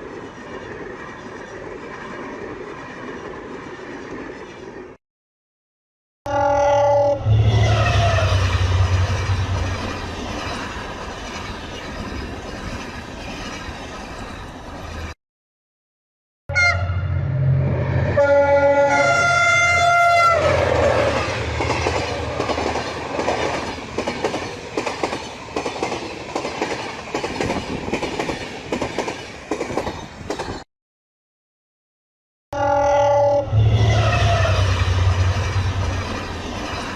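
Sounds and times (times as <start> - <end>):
train rumble: 7.2 - 15.2, 16.6 - 30.6, 33.4 - 36.9
train horn chord: 16.5 - 21.2, 32.6 - 34.7
train wheels clattering over rail joints: 21.5 - 30.6.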